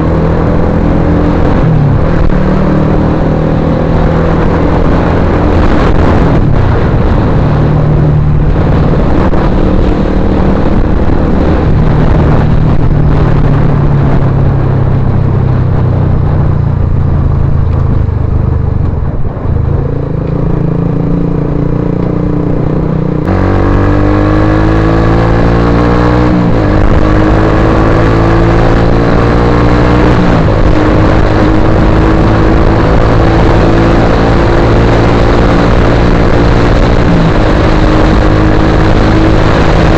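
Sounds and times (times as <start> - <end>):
loud motorcycle engine revving: 19.9 - 39.9.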